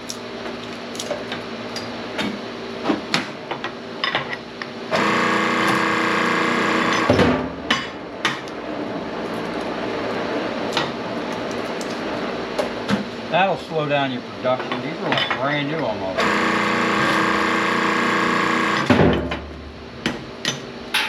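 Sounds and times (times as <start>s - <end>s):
hydraulic press whine: 4.9s - 7.6s, 16.2s - 19.5s.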